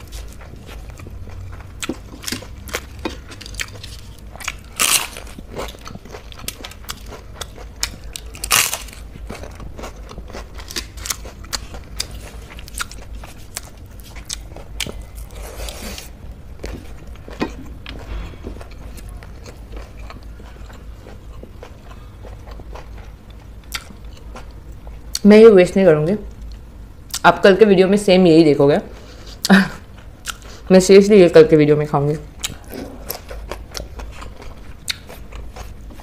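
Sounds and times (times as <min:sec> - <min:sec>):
crisp food crunching: 0:00.0 - 0:24.6
person chewing: 0:00.0 - 0:25.2, 0:29.0 - 0:30.6, 0:32.4 - 0:36.0.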